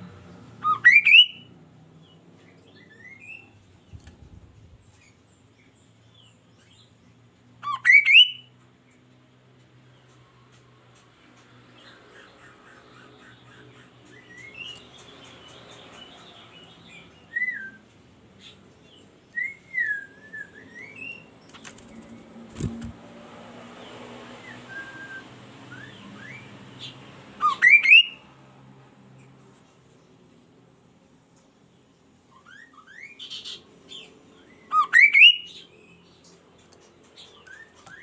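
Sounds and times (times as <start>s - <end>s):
songbird singing whistled notes: 0.6s - 1.5s, 7.6s - 8.5s, 16.6s - 21.4s, 24.4s - 28.2s, 32.2s - 36.4s.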